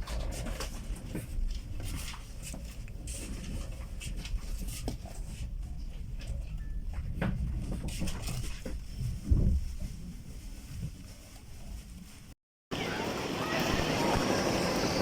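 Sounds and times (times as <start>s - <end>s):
train carriage rumble: 3.0s - 15.0s.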